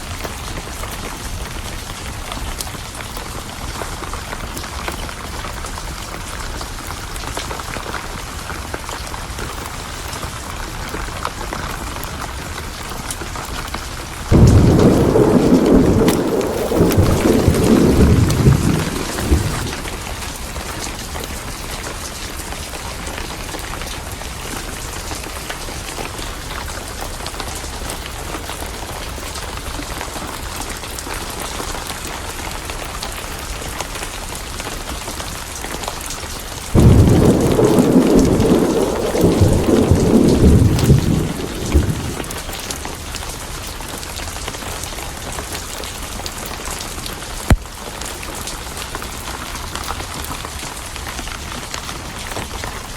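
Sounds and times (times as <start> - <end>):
steady rain: 0.0 - 52.9
thunder rumbling: 14.2 - 21.6, 36.7 - 43.1.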